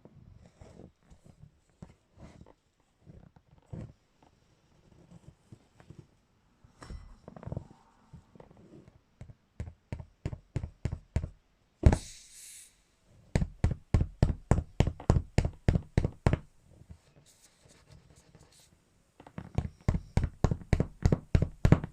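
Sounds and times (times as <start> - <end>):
crowbar striking beach ball: 11.8 - 12.0, 19.9 - 21.9
short air hiss: 11.8 - 13.0.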